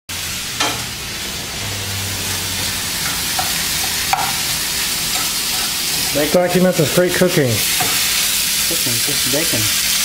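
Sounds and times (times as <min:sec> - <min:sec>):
bacon sizzling in a pan: 0:00.1 - 0:10.0.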